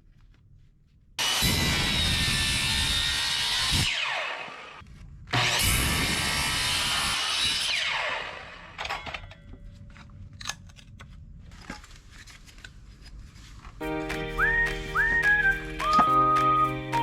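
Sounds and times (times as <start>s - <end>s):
power tool whining: 1.2s - 4.8s, 5.4s - 9.0s.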